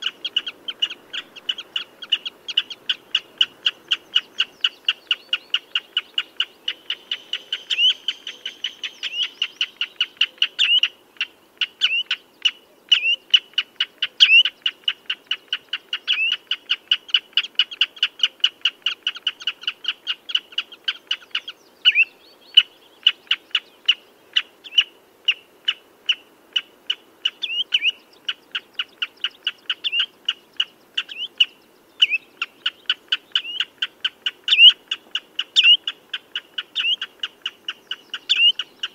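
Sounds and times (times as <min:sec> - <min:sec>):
redshank calling: 0:00.0 - 0:11.0, 0:27.2 - 0:38.9.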